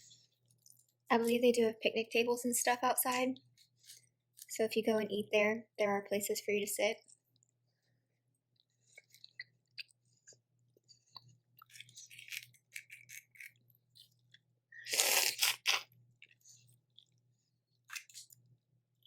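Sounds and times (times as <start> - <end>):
wet chewing: 8.3 - 18.6
crunching or slurping bursts: 14.8 - 17.2.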